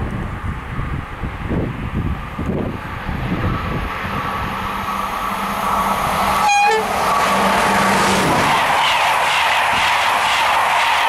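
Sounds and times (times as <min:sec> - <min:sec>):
electric locomotive running: 0:00.0 - 0:11.0
locomotive horn toot: 0:06.4 - 0:07.1.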